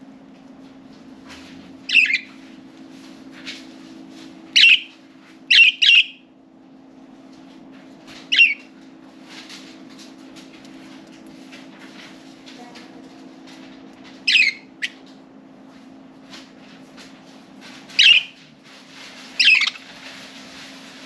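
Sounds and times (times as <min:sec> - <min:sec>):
budgerigars chirping: 0:01.9 - 0:02.3, 0:04.6 - 0:04.9, 0:05.5 - 0:06.2, 0:08.3 - 0:08.6, 0:14.3 - 0:15.0, 0:18.0 - 0:18.3, 0:19.4 - 0:19.8.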